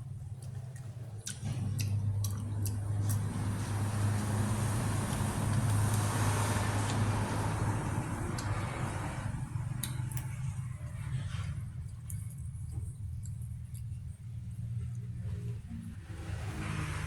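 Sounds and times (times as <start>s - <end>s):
road vehicle passing: 0.0s - 17.0s
steady low hum: 0.0s - 17.0s.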